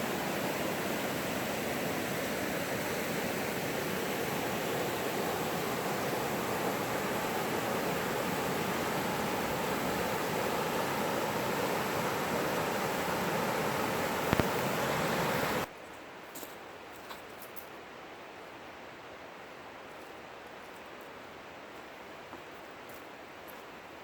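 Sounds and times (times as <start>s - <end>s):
running water rushing: 0.0s - 15.7s.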